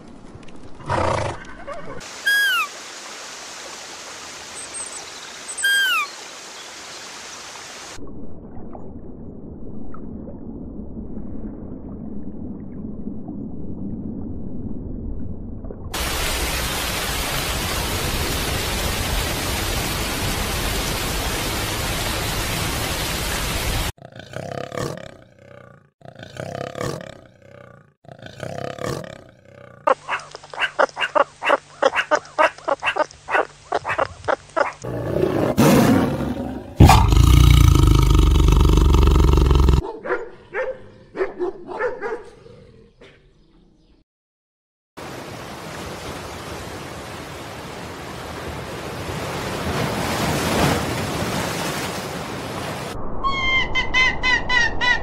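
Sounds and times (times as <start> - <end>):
animal calls: 1.3 - 2.7, 5.6 - 6.1, 29.9 - 37.2
pulsed animal calls: 29.9 - 34.8
loud deep animal call: 33.7 - 39.8.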